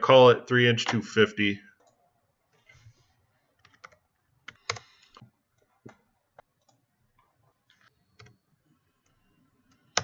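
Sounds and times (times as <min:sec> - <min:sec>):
computer mouse and keyboard clicking: 0:03.5 - 0:08.4.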